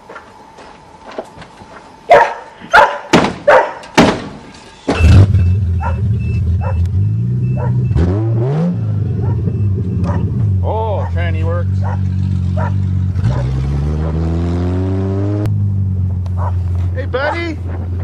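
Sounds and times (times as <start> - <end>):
dog barking: 2.1 - 3.9, 5.8 - 6.8, 7.5 - 7.8, 9.2 - 10.3, 11.0 - 14.2, 16.4 - 16.6
car engine starting and idling: 4.8 - 18.0
repeating high beep: 4.9 - 8.5, 9.5 - 10.4.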